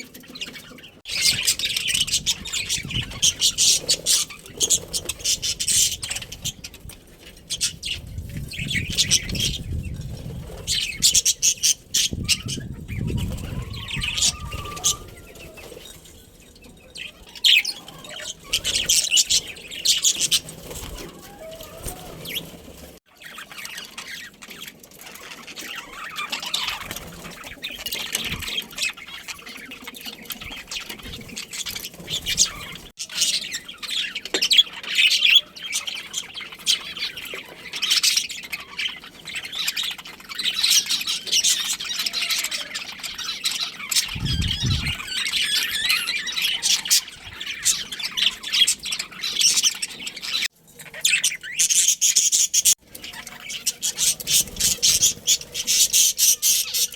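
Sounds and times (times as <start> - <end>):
budgerigars chirping and chattering: 0.0 - 56.9.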